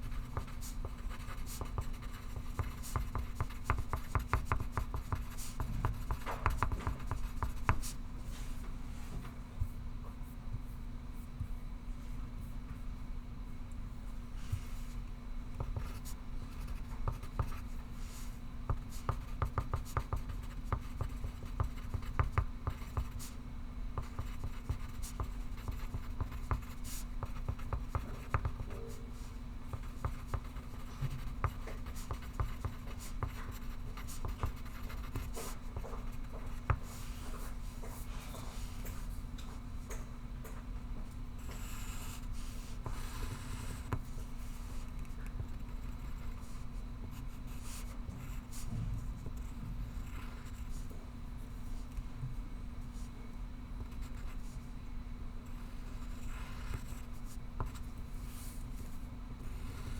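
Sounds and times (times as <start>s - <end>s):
pencil scratching on paper: 0.0s - 8.0s, 15.7s - 23.4s, 24.0s - 28.7s, 29.7s - 37.2s, 49.4s - 50.8s
steady low hum: 0.0s - 59.9s.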